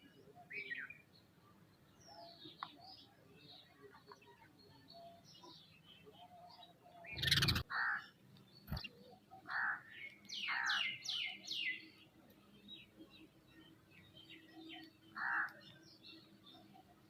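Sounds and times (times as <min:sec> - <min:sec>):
birds calling: 0:05.4 - 0:12.0, 0:13.6 - 0:16.7.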